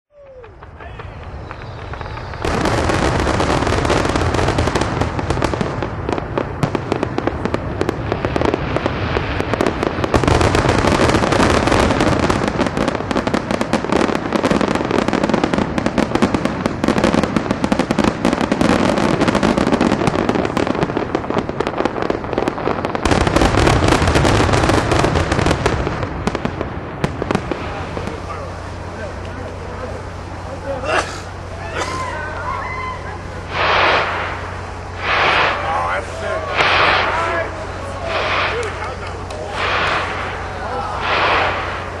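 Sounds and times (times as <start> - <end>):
explosive bangs and crackling: 0.6 - 30.6, 33.2 - 42.0
low rumble: 25.6 - 42.0.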